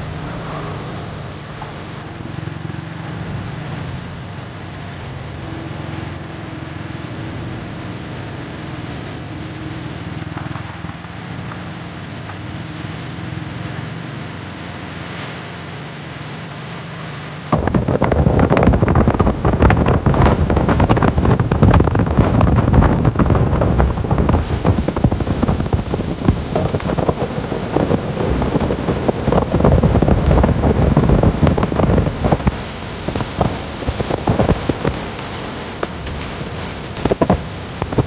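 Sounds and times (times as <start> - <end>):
motorcycle engine and road hum: 0.0 - 38.0
wind buffeting microphone: 17.5 - 38.0.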